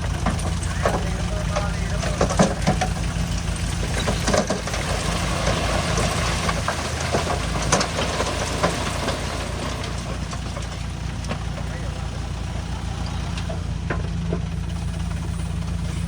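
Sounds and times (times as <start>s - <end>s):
diesel engine running: 0.0s - 16.0s
sharp knocks and clanks: 0.1s - 12.0s.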